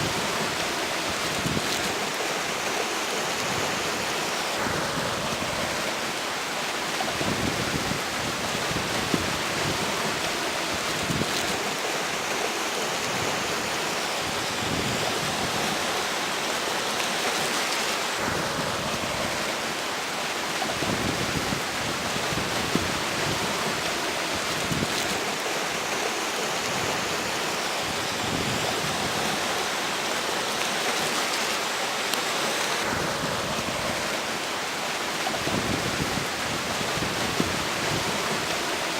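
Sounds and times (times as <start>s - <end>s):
river flowing: 0.0s - 38.9s
strong wind gusts: 0.0s - 38.9s.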